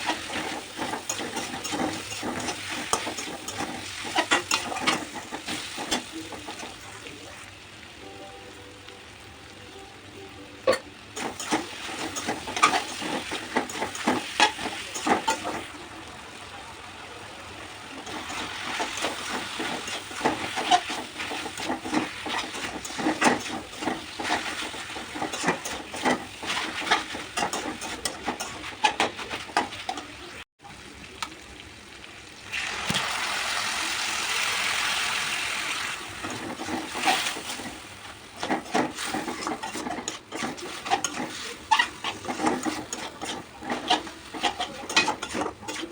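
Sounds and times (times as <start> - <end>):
spatula scraping pan: 0.0 - 7.2, 10.7 - 15.8, 17.9 - 30.4, 36.0 - 45.9
food sizzling in pan: 0.0 - 45.9.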